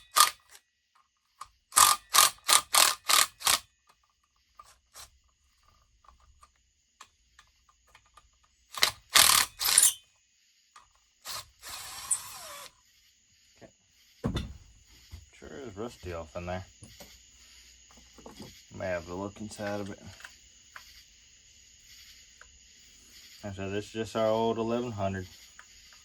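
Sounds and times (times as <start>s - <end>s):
ratchet wrench clicking: 0.0s - 0.6s, 1.4s - 4.0s, 8.7s - 10.0s.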